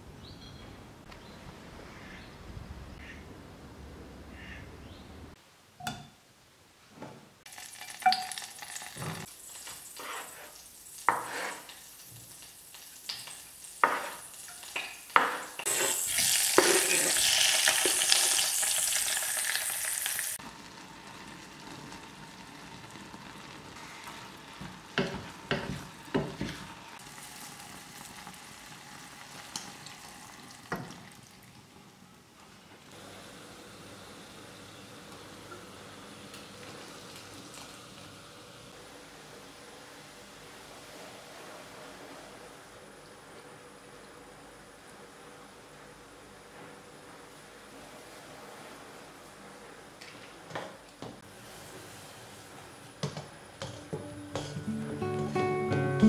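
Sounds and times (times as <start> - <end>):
mushrooms sizzling in hot fat: 7.5 - 31.9
utensils clinking against pot: 53.6 - 54.7.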